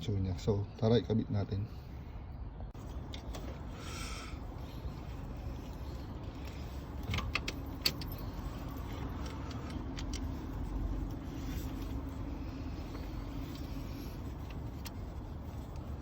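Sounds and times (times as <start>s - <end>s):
steady low hum: 1.6s - 16.0s
hand tools clicking and clinking: 5.6s - 12.3s.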